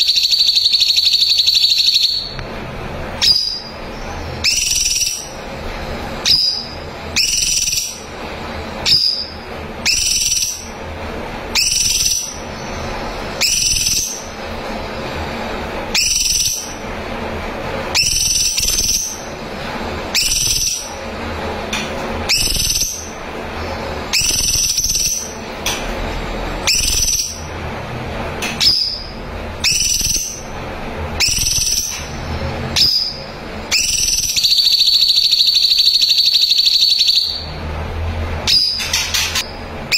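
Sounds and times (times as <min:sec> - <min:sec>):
bird whistled calls: 0:00.0 - 0:02.4, 0:03.2 - 0:05.4, 0:06.2 - 0:08.1, 0:08.8 - 0:10.8, 0:11.6 - 0:14.4, 0:15.9 - 0:16.8, 0:17.9 - 0:19.3, 0:20.1 - 0:21.0, 0:22.3 - 0:23.2, 0:24.1 - 0:25.4, 0:26.6 - 0:27.5, 0:28.6 - 0:30.5, 0:31.2 - 0:32.1, 0:32.8 - 0:37.5, 0:38.5 - 0:39.5.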